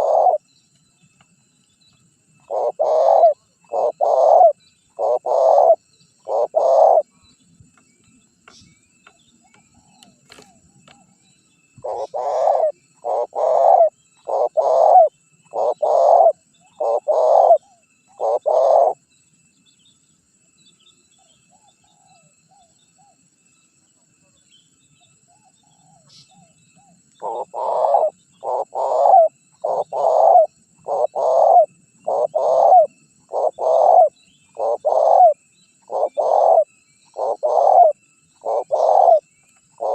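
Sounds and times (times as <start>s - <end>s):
dove cooing: 0.0s - 0.4s, 2.4s - 7.1s, 11.8s - 19.0s, 25.4s - 39.2s.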